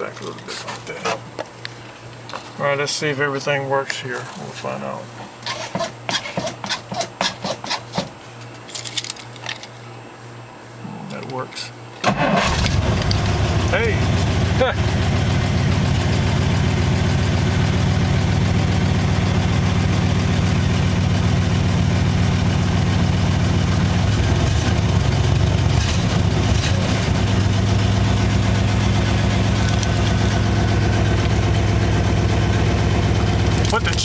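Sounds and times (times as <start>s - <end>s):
car engine idling: 12.3s - 34.0s.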